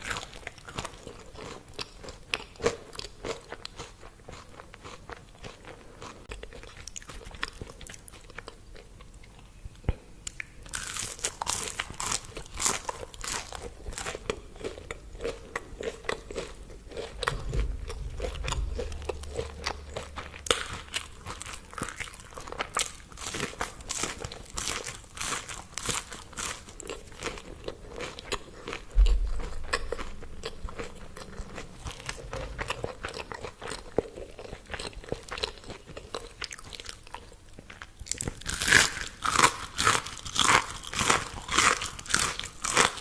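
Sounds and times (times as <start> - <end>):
person crunching crispy food: 10.3 - 43.0
low rumble: 16.0 - 22.8, 28.9 - 34.2.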